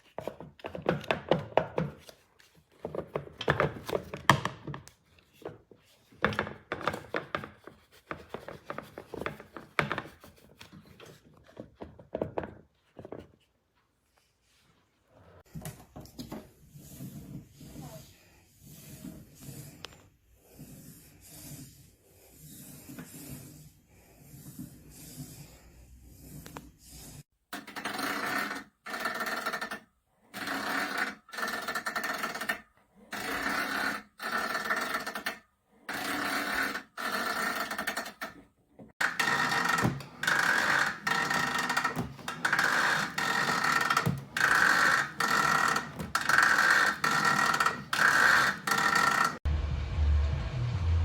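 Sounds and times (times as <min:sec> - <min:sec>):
rowing machine whirring: 0:39.0 - 0:49.5
low hum: 0:49.5 - 0:51.0.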